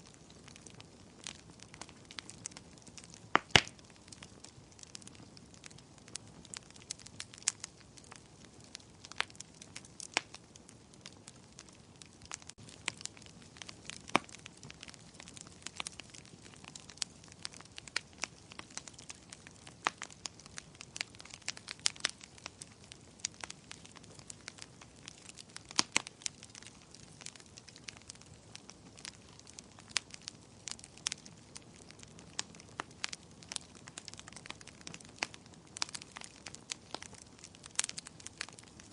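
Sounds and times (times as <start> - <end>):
fire crackling and popping: 0.0 - 38.9.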